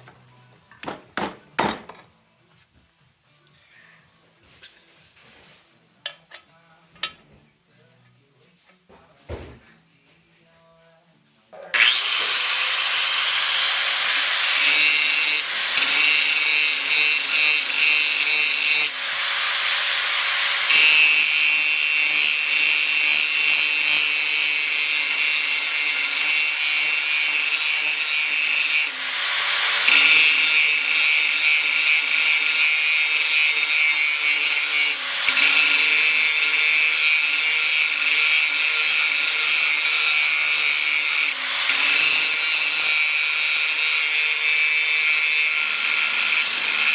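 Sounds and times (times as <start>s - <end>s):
power tool grinding steel: 11.6s - 46.9s.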